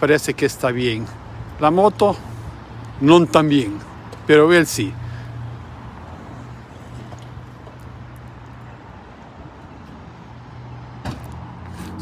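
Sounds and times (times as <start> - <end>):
street background noise: 0.0 - 12.0.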